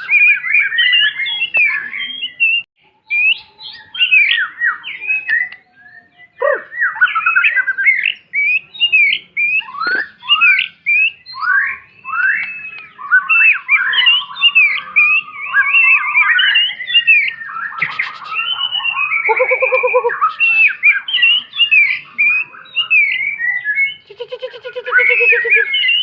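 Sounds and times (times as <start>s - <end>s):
bird singing whistled song: 0.0s - 26.0s.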